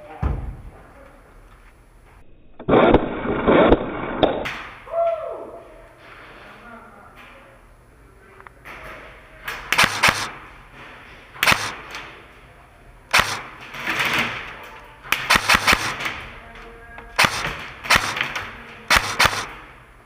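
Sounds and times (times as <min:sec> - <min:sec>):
airsoft gun shots: 0:09.6 - 0:10.5, 0:11.4 - 0:12.0, 0:13.1 - 0:13.6, 0:15.1 - 0:16.2, 0:17.2 - 0:19.7.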